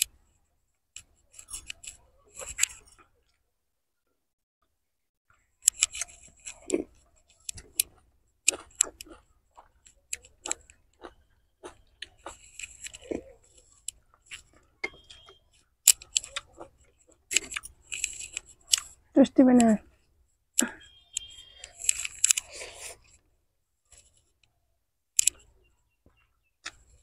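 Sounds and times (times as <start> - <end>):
lip-smacking clicks: 5.6 - 19.0, 25.2 - 27.0
wet chewing: 5.6 - 19.1, 19.8 - 23.3, 25.2 - 27.0.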